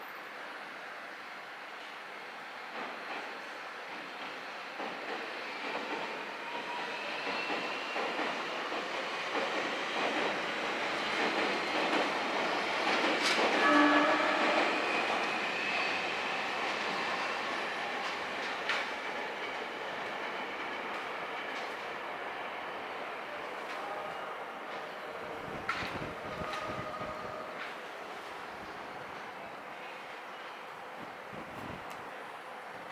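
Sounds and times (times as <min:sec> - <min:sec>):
train wheel and running noise: 0:00.0 - 0:32.9
train horn note: 0:13.6 - 0:15.1, 0:25.3 - 0:27.8.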